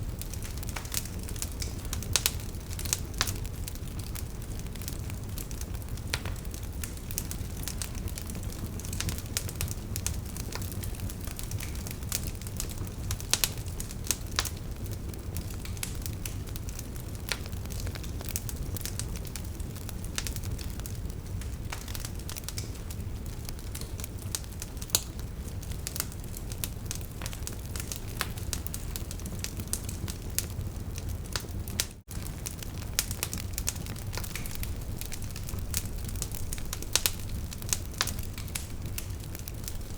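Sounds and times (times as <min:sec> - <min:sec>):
wood fire crackling: 0:00.0 - 0:39.9
sharp pops and snaps: 0:32.0 - 0:39.9.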